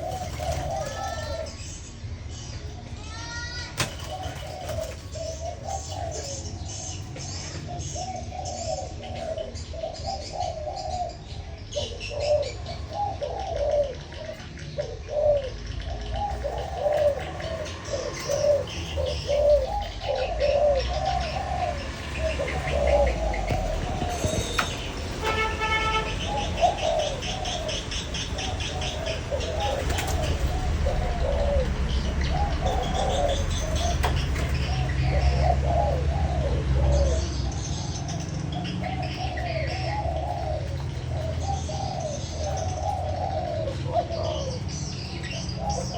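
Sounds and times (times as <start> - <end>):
doves cooing: 0.0 - 2.1, 3.5 - 45.9
small birds chirping: 0.0 - 45.9.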